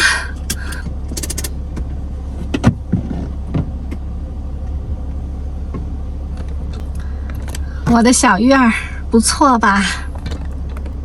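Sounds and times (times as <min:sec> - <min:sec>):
engine idling low hum: 0:00.0 - 0:11.0
clicks and knocks in cab: 0:00.4 - 0:01.6.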